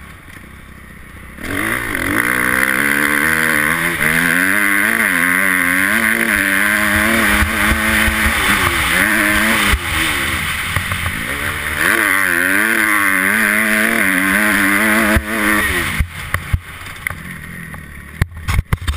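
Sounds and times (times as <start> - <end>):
motocross bike engine revving: 0.0 - 18.9.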